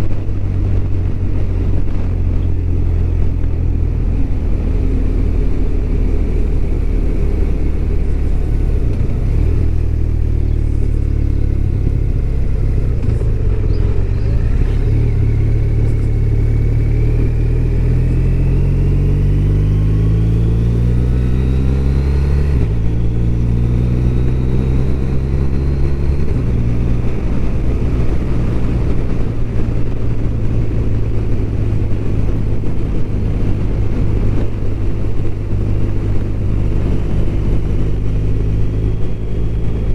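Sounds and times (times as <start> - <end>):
motorcycle engine: 0.0 - 39.9
wind noise: 0.0 - 39.9.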